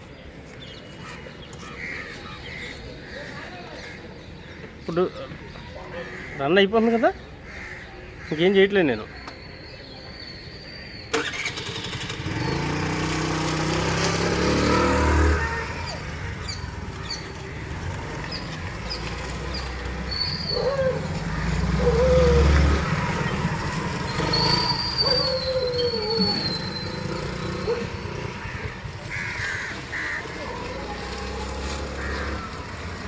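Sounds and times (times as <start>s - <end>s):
scooter engine starting click: 11.1s - 12.3s
scooter engine revving: 11.1s - 20.1s, 21.0s - 33.0s.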